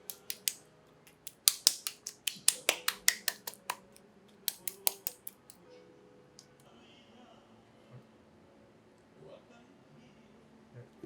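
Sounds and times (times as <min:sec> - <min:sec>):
rapid sharp clicks: 0:00.0 - 0:03.8, 0:04.5 - 0:05.6.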